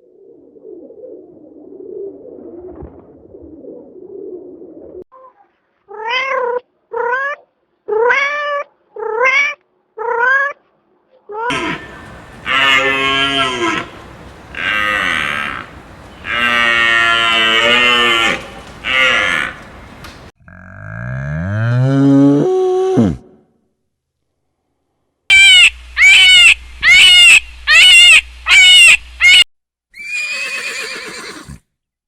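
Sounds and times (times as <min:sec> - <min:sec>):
cattle mooing: 0:11.5 - 0:20.7.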